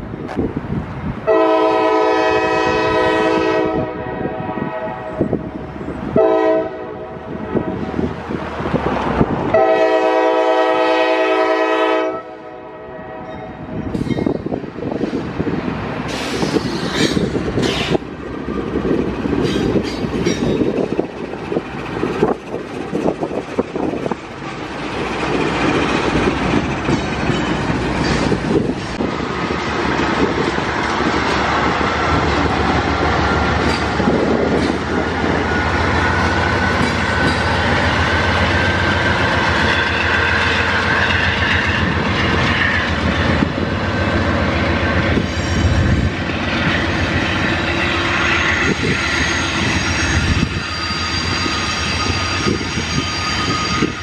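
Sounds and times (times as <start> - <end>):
diesel locomotive engine hum: 0.0 - 54.0
train horn: 1.2 - 5.5, 6.1 - 7.9, 9.5 - 13.7
freight cars rolling with wheel clatter: 16.1 - 40.9.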